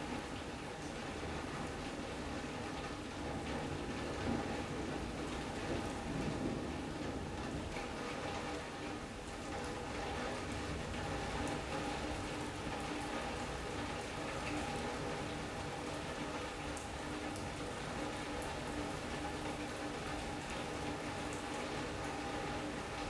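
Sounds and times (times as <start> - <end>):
rain on roof and glass: 0.0 - 23.0.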